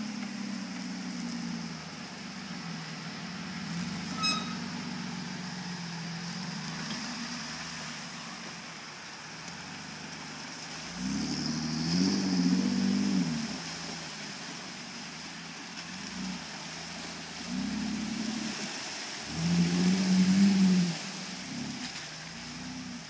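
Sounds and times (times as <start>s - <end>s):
engine running: 0.0s - 23.0s
steady high hiss: 0.0s - 23.0s
short high beep: 4.1s - 4.6s.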